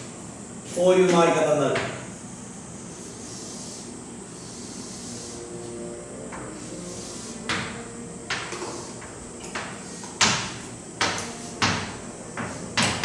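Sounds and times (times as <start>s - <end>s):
writing scratches on a board: 3.0s - 5.4s, 6.4s - 10.4s.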